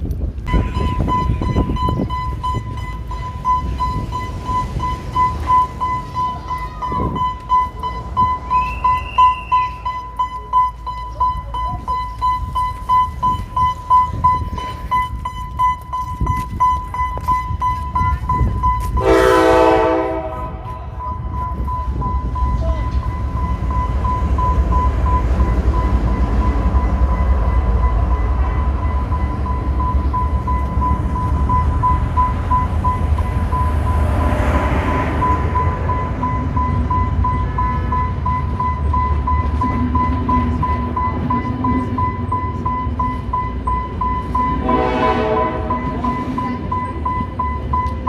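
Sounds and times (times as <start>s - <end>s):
train rumbling: 0.0s - 48.0s
steady high-pitched tone: 0.5s - 48.0s
rushing noise: 11.8s - 48.0s
horn blast: 19.0s - 20.7s, 44.6s - 46.0s.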